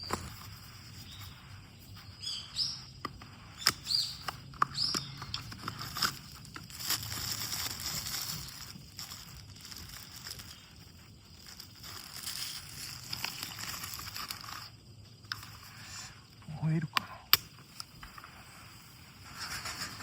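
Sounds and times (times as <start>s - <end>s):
small bird chirping: 0.0s - 20.0s
soft hissing rustle: 0.0s - 20.0s
sharp clicks and snaps: 16.9s - 18.2s.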